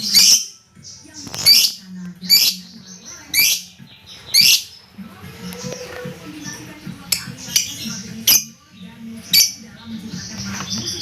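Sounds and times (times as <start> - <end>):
bird high-pitched calls: 1.3 - 6.2.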